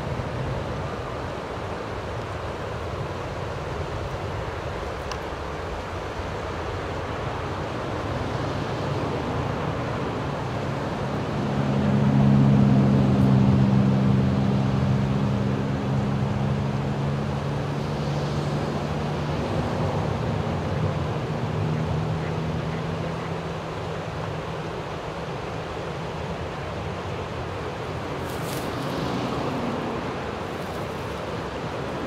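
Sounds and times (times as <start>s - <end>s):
jet engines rushing: 22.5s - 32.0s.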